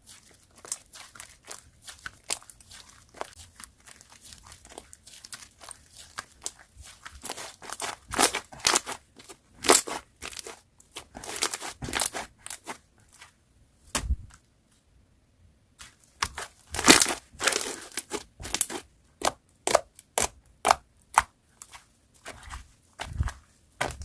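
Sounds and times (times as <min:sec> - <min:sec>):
slime crackling and popping: 0:16.2 - 0:21.3.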